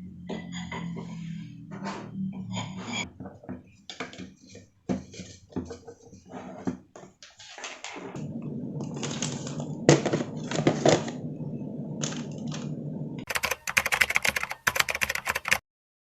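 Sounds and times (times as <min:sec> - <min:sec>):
steady low hum: 0:00.0 - 0:03.8, 0:08.2 - 0:13.3
small hard objects clattering: 0:06.9 - 0:11.2, 0:12.0 - 0:12.7.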